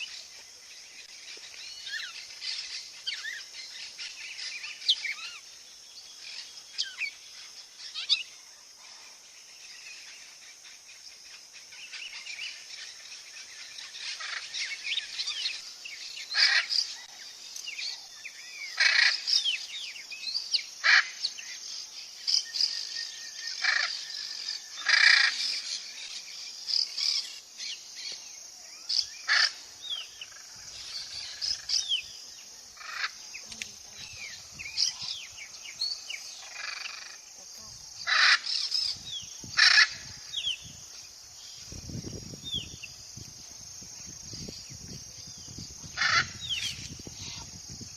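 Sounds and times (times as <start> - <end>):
birds chirping and whistling: 33.0 - 37.0, 38.0 - 40.8, 41.4 - 43.3, 44.0 - 47.9
harsh bird calls: 45.3 - 47.6.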